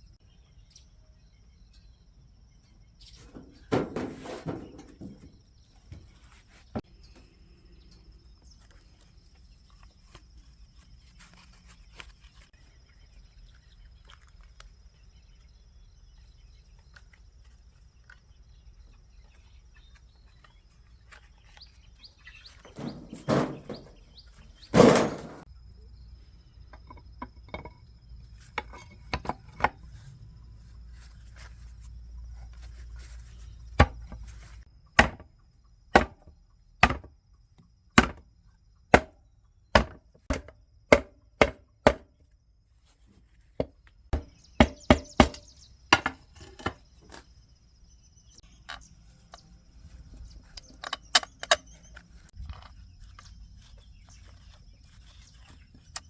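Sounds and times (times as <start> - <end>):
noisy scrapes or rattles: 3.2 - 5.2, 22.7 - 25.5.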